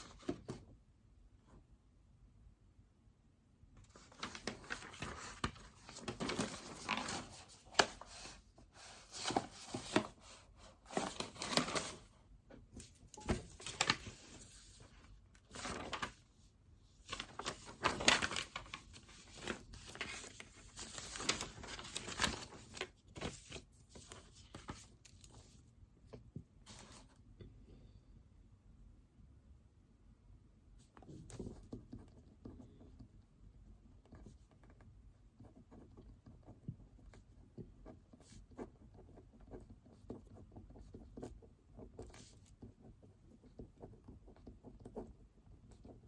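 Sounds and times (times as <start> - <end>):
pen scratching on paper: 34.0 - 46.0.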